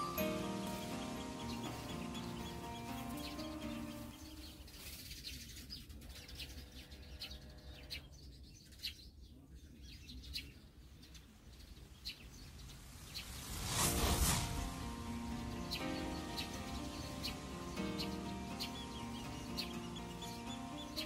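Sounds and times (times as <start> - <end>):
small birds chirping: 0.0 - 21.0
loud rush of noise: 12.5 - 20.8.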